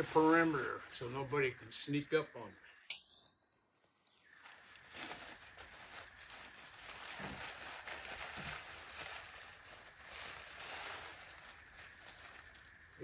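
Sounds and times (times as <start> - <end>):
nylon tarp rustling: 0.0 - 1.6, 4.3 - 13.0.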